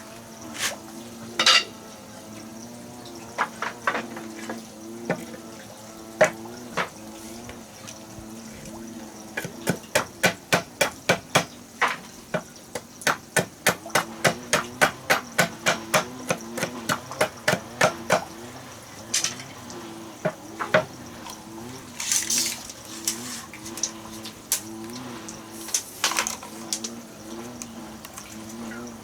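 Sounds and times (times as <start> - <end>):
scattered knocks: 3.3 - 5.4, 6.2 - 7.0, 9.4 - 18.4, 20.2 - 21.0
hammer blows on wood: 9.4 - 18.3.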